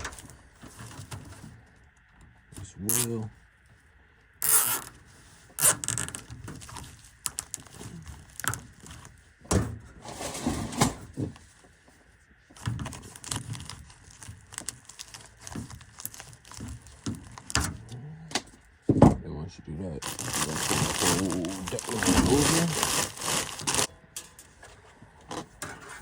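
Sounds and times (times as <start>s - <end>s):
zip tie rustling and clicking: 4.4s - 4.9s.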